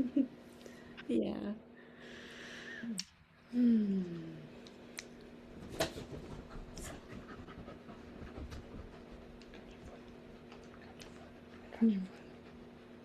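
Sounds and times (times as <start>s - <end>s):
steady low hum: 0.0s - 13.0s
soft breath-like sounds: 1.8s - 4.5s.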